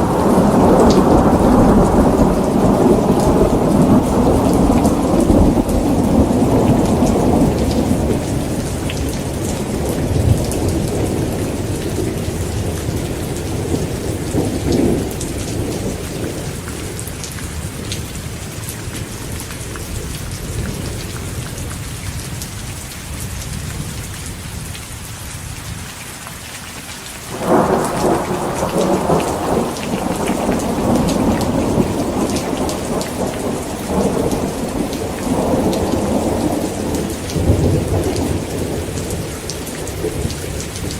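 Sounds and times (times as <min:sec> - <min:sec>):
rolling thunder: 0:00.0 - 0:18.2, 0:27.3 - 0:40.9
heavy rain falling: 0:00.0 - 0:40.9.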